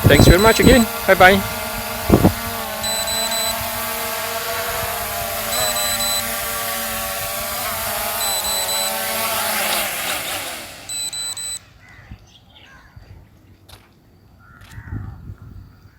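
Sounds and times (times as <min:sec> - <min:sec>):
short high electronic beeps: 0:00.0 - 0:00.8, 0:02.8 - 0:03.6, 0:05.5 - 0:06.4, 0:08.2 - 0:09.1, 0:10.9 - 0:11.6
drone propellers whining: 0:00.0 - 0:11.6.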